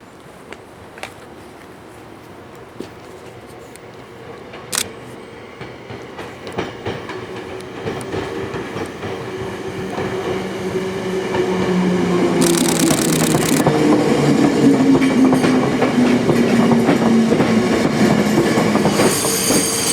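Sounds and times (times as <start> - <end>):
electric train approaching: 3.8 - 19.9
train motor hum: 11.7 - 13.7.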